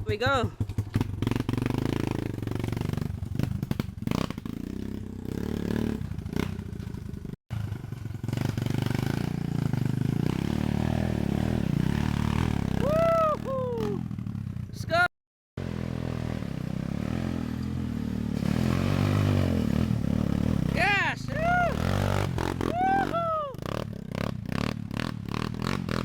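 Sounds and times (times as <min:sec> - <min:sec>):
dirt bike engine running: 0:00.0 - 0:26.0.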